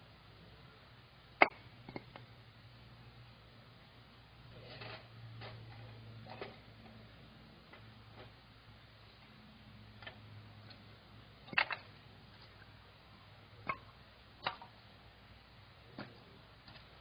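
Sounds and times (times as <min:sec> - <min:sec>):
faint low hum: 0:00.0 - 0:17.0
sharp clicks and knocks: 0:01.4 - 0:02.3, 0:11.4 - 0:12.6.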